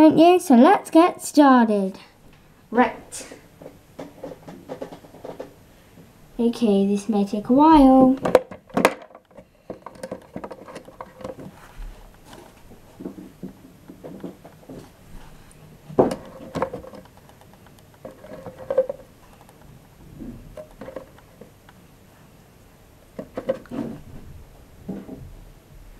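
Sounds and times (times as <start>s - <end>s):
plastic toy figures clattering: 8.0s - 11.5s, 16.1s - 17.2s, 18.0s - 19.1s.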